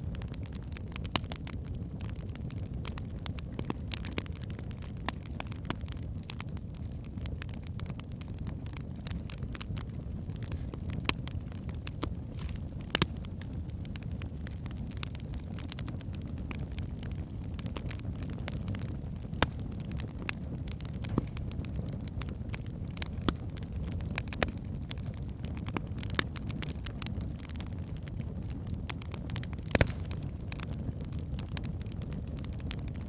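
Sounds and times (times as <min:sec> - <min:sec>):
burning logs crackling and popping: 0:00.0 - 0:33.0
fire flames rumbling: 0:00.0 - 0:33.0.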